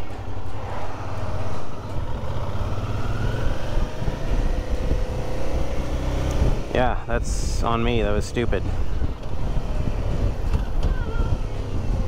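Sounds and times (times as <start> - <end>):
motorcycle engine accelerating: 0.2 - 6.8.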